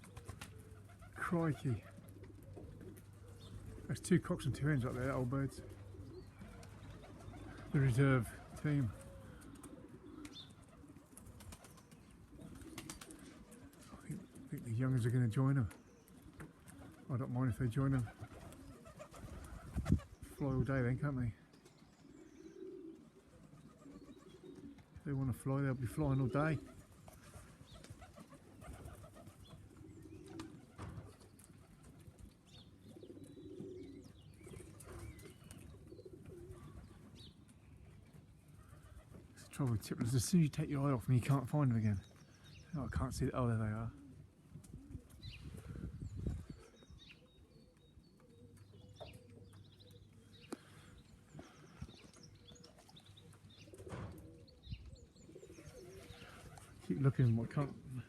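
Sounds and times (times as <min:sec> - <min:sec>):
pigeons cooing: 0:00.0 - 0:58.0
small birds chirping: 0:00.0 - 0:58.0
faint bird chirps: 0:44.8 - 0:58.0.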